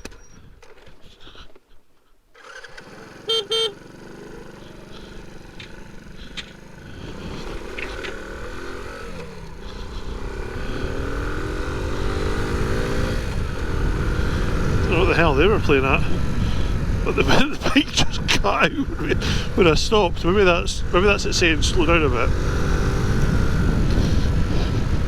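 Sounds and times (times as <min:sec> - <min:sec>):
motorcycle engine accelerating: 0:02.4 - 0:25.0
motorcycle horn toots: 0:03.0 - 0:04.2.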